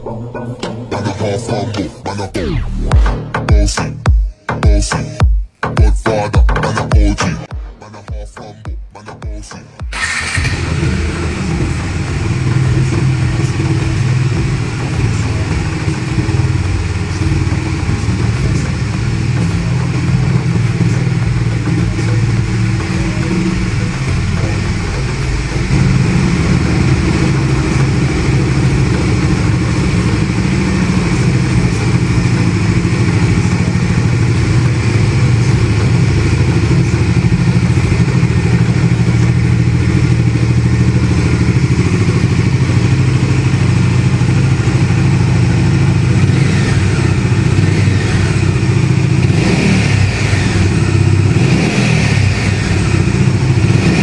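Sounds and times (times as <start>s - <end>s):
motorcycle engine running: 6.3s - 54.0s.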